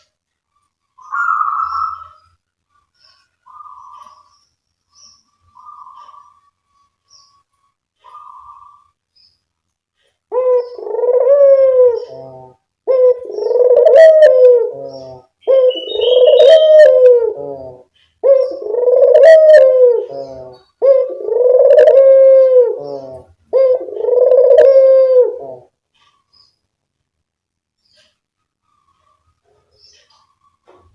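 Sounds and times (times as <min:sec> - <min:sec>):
dove cooing: 0:03.5 - 0:04.3, 0:05.5 - 0:06.5, 0:08.0 - 0:08.9, 0:10.3 - 0:26.2.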